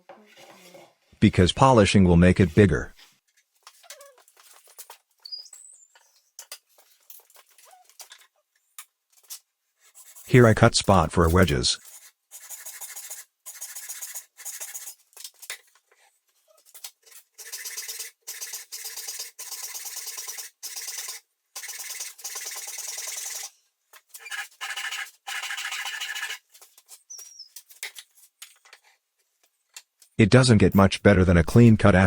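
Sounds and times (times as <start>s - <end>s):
hand saw cutting wood: 10.0s - 15.0s, 24.2s - 26.5s.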